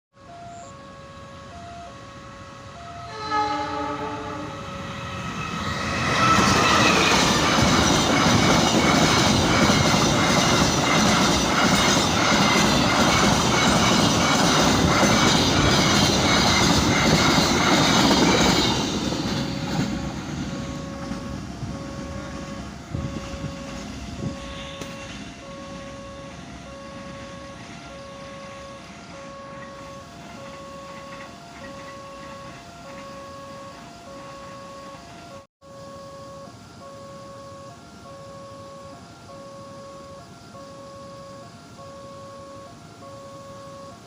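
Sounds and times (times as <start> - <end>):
train horn blast: 0.2 - 7.2, 20.6 - 36.4
train wheels clattering on rails: 5.5 - 26.0
two-tone electronic chime: 19.5 - 44.0.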